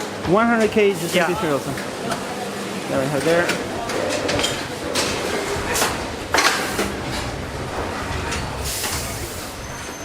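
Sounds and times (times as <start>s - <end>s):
low factory rumble: 0.0s - 10.0s.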